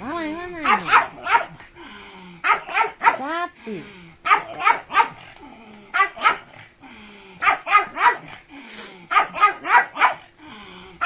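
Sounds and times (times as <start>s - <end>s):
dog barking: 0.6s - 1.6s, 2.4s - 3.3s, 4.2s - 5.2s, 5.9s - 6.6s, 7.4s - 8.3s, 9.1s - 10.3s.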